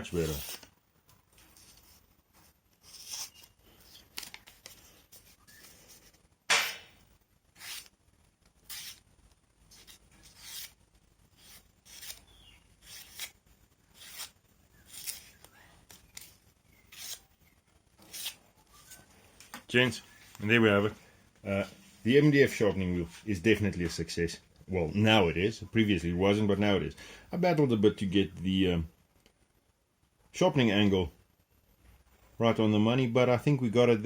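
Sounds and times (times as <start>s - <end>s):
knife slicing paper: 0.0s - 0.7s, 2.8s - 5.9s, 7.6s - 7.9s, 8.6s - 9.0s, 9.7s - 10.8s, 11.4s - 15.4s, 16.2s - 17.3s.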